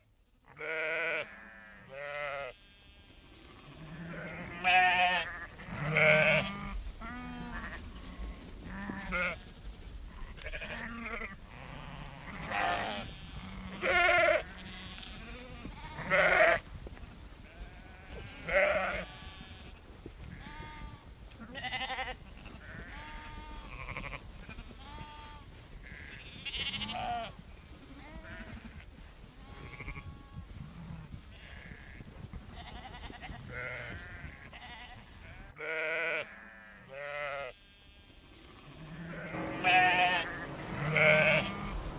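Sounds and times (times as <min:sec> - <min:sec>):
sheep bleating: 0:00.5 - 0:16.6, 0:17.5 - 0:41.9
low steady rumble: 0:38.8 - 0:41.9.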